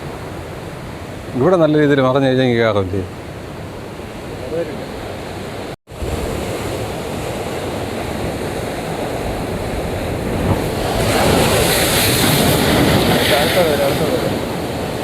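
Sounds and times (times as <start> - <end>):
wind buffeting the microphone: 3.1 - 15.0
sea waves breaking on rocks: 5.4 - 15.0.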